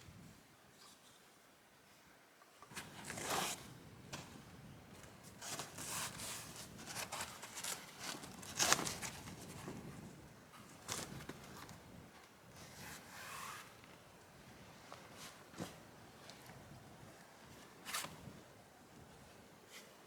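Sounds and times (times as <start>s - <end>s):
materials rustling and scraping: 5.0s - 9.9s.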